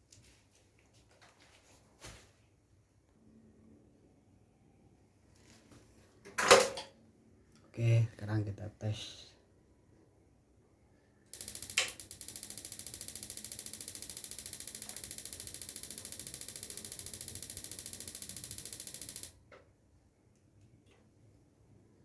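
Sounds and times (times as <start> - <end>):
spark igniter ticking: 11.3 - 19.4
igniter click: 11.4 - 19.4.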